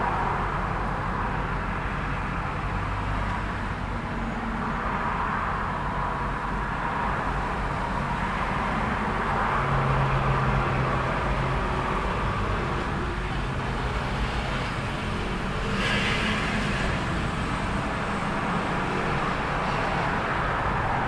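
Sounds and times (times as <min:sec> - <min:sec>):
road traffic noise: 0:00.0 - 0:21.0
low vehicle engine hum: 0:07.2 - 0:21.0.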